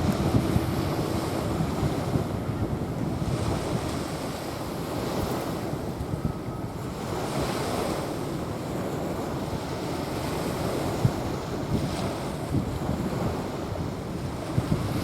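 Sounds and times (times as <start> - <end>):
small waves washing on sand: 0.0 - 6.0, 6.8 - 15.0
wind buffeting microphone: 0.0 - 15.0.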